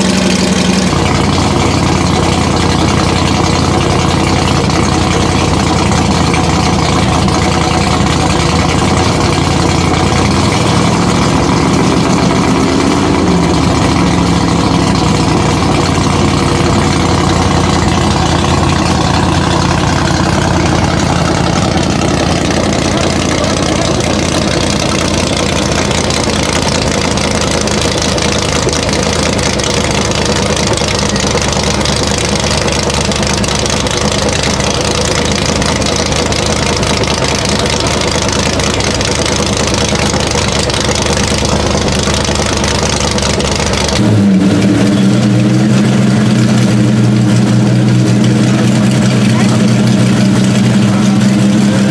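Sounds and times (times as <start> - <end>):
car engines idling: 0.0 - 51.9.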